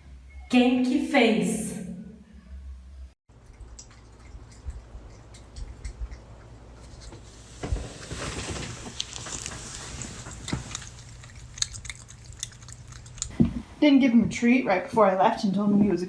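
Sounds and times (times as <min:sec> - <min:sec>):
dog claws clicking: 0:10.5 - 0:13.3.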